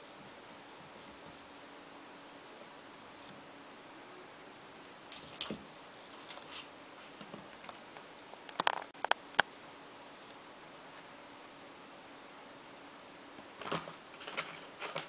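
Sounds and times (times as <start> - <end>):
cats tapping and scratching: 13.6 - 15.0.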